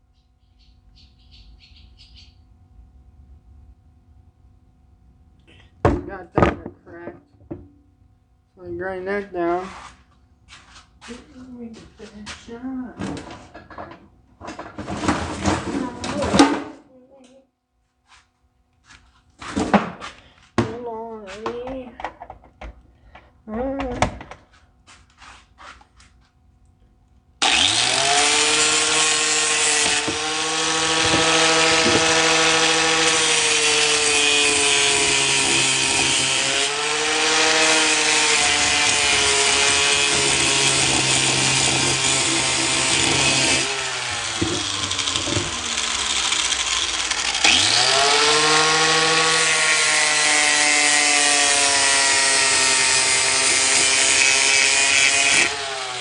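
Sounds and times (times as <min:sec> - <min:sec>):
angle grinder grinding metal: 0:08.6 - 0:16.7, 0:27.4 - 0:56.0.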